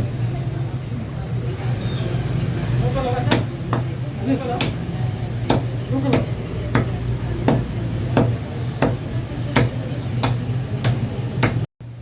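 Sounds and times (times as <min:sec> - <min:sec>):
knife chopping on cutting board: 0:03.3 - 0:03.9, 0:05.5 - 0:11.6.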